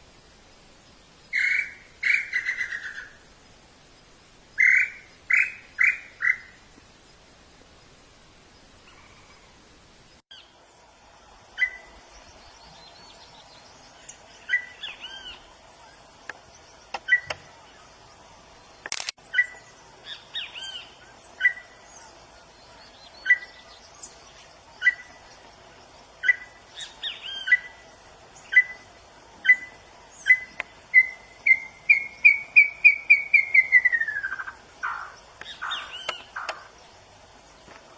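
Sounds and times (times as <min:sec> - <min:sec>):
faint steady hum: 0:00.0 - 0:37.9
bird singing whistled notes: 0:01.3 - 0:03.2, 0:04.6 - 0:06.6, 0:11.6 - 0:15.5, 0:16.6 - 0:17.6, 0:19.2 - 0:24.2, 0:24.8 - 0:25.2, 0:26.2 - 0:36.6
sharp click: 0:18.8 - 0:19.2.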